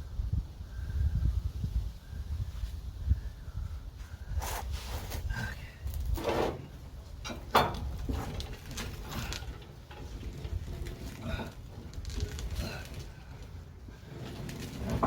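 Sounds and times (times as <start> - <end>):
tools and metal parts clanking: 6.1 - 15.0.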